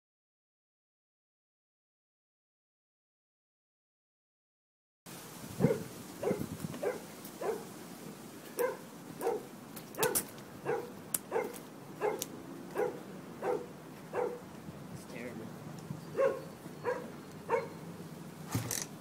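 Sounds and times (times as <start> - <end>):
dog barking: 5.6 - 7.7, 8.6 - 14.4, 16.1 - 17.8.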